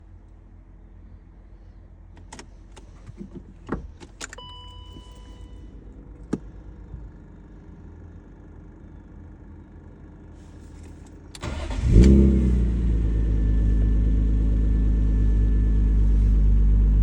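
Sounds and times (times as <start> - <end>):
car engine starting: 10.4 - 17.0.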